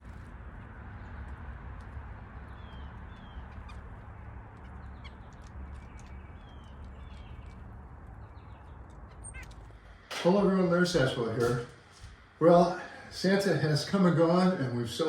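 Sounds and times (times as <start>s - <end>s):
background rumble and hiss: 0.0s - 15.0s
birds chirping: 0.0s - 15.0s
faint ticks: 1.2s - 10.0s.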